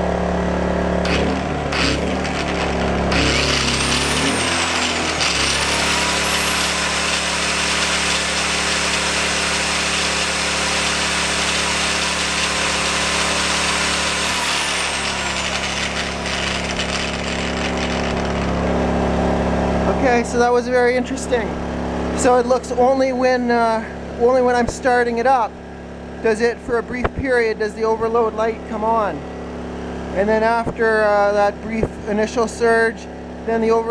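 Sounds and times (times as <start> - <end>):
angle grinder whine: 0.0 - 23.3
generator engine running: 0.0 - 33.9.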